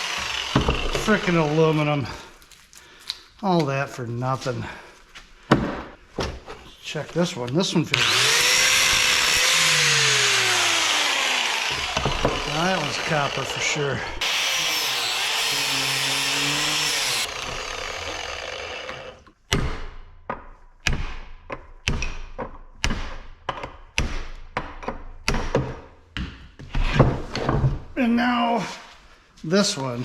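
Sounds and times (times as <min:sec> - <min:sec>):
angle grinder cutting metal: 0:00.0 - 0:02.1, 0:07.9 - 0:19.3.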